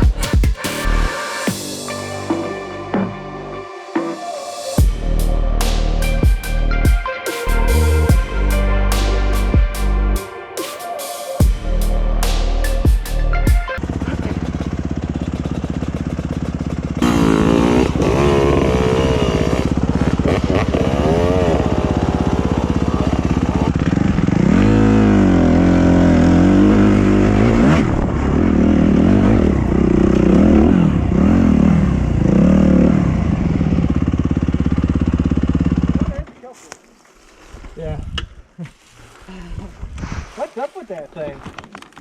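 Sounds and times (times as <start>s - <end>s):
dirt bike engine revving: 13.3s - 36.3s.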